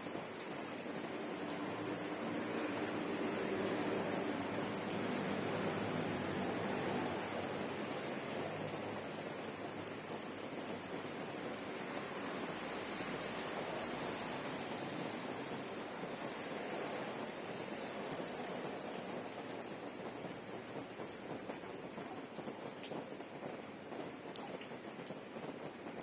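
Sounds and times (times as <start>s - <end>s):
steady rain hiss: 0.0s - 26.0s
raindrop ticks: 0.1s - 11.6s, 18.1s - 26.0s.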